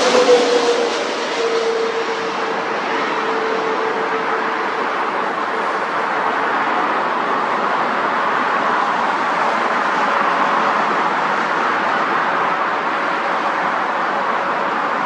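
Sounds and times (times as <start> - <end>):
distant engines roaring: 0.0 - 15.0.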